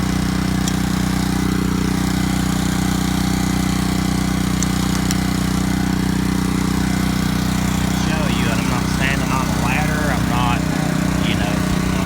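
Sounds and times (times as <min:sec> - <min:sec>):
pressure washer engine running: 0:00.0 - 0:12.0.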